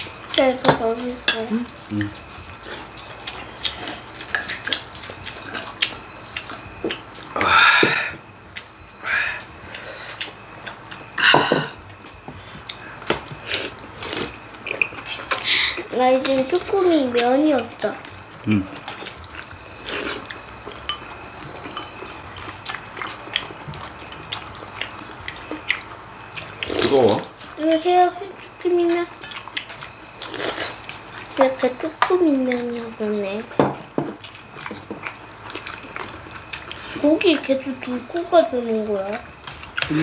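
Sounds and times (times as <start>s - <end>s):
people chewing: 0.0s - 40.0s
glasses and tableware clinking: 11.2s - 11.8s, 20.6s - 22.2s.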